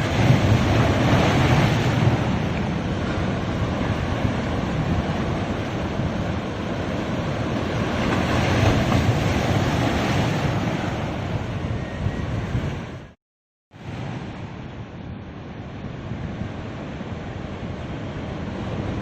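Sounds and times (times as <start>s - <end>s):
ocean surf washing onto beach: 0.0s - 12.0s.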